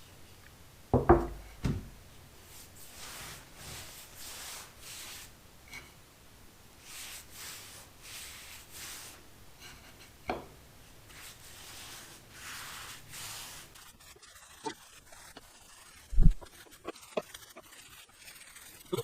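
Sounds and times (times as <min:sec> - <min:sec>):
scraping strokes on wood: 0:11.1 - 0:19.0.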